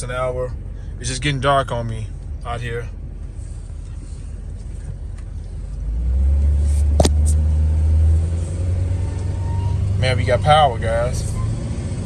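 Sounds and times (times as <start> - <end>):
truck engine accelerating: 5.6 - 12.0
sharp click: 6.8 - 7.4.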